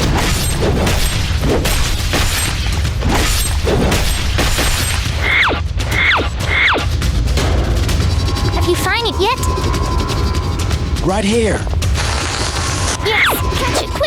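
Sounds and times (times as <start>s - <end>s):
bass-heavy music: 6.9s - 14.0s.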